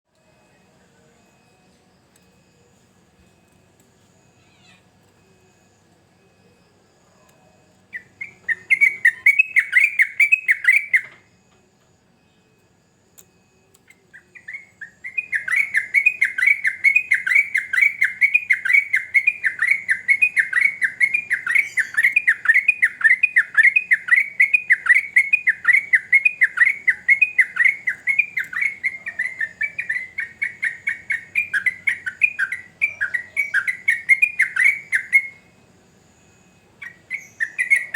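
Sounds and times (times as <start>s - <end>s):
bird singing bubbly chirps: 7.9s - 11.1s, 14.2s - 35.5s, 36.8s - 37.9s.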